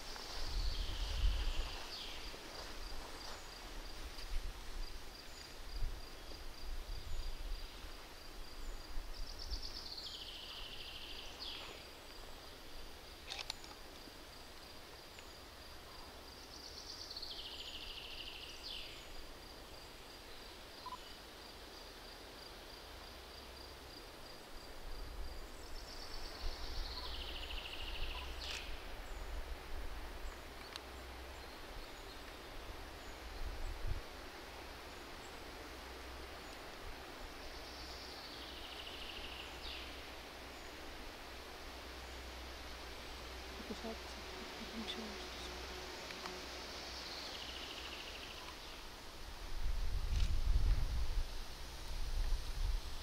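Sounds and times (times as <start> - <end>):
low wind rumble: 0.0 - 11.4, 48.6 - 53.0.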